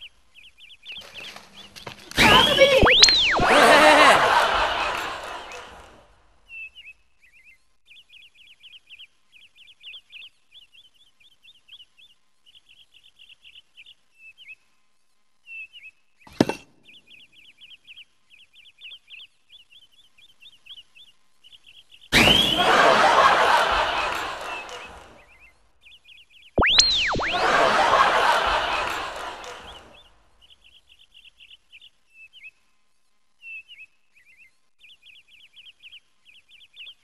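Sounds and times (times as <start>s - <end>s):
small birds chirping: 0.0s - 22.6s, 24.4s - 37.0s
rising whistle: 2.8s - 4.1s, 26.6s - 28.9s.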